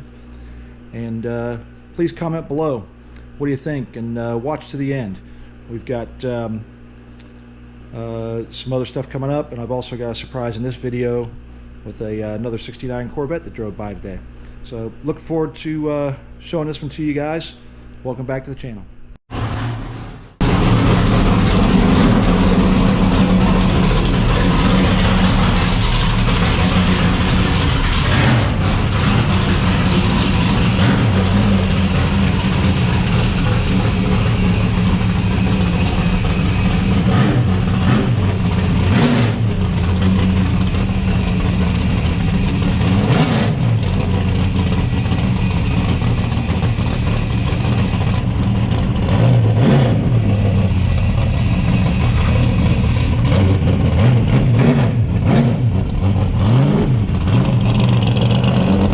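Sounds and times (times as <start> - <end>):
car engine revving: 19.3 - 58.9.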